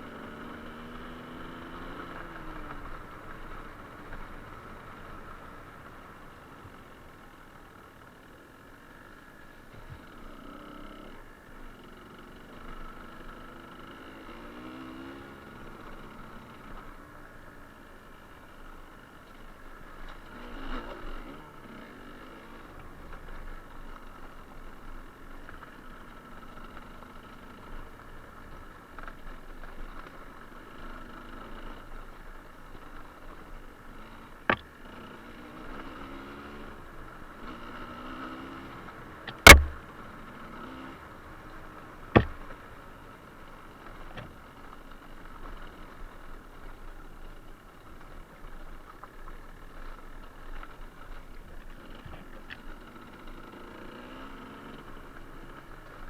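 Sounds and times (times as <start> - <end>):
two-stroke engine idling: 0.0 - 56.0
sharp knocks: 39.4 - 39.8, 42.2 - 42.4.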